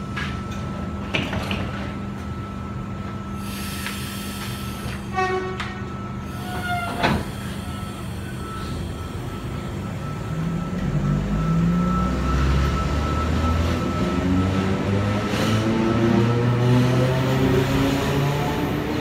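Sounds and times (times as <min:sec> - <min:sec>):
train doors shutting with a thud: 0:03.6 - 0:09.0
falling electronic warning tones: 0:05.8 - 0:18.8.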